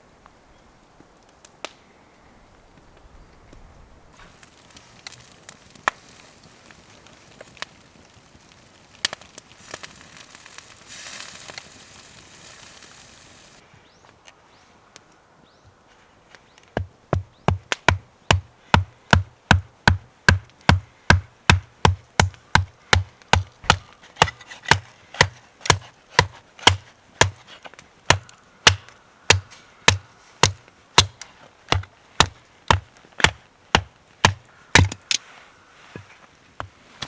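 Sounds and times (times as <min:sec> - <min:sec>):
rhythmic chopping strikes: 0:16.8 - 0:35.2.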